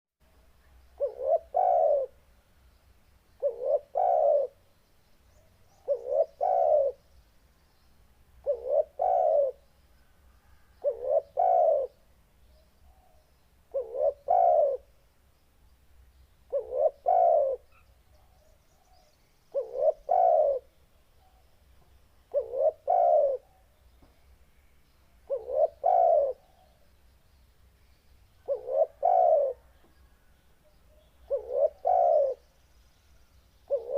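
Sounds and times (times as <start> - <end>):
dove cooing: 1.0 - 2.2, 3.4 - 4.6, 5.8 - 7.0, 8.4 - 9.6, 10.4 - 12.0, 12.8 - 14.9, 16.5 - 18.4, 19.0 - 21.4, 22.3 - 23.7, 25.2 - 26.8, 28.4 - 29.9, 30.9 - 32.4, 33.7 - 33.9.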